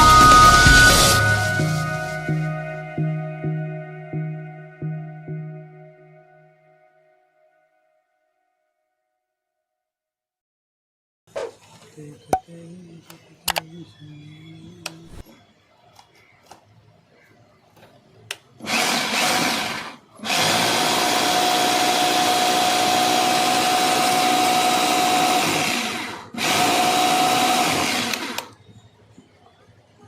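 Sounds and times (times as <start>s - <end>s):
hammer drill motor whining: 18.6s - 28.6s.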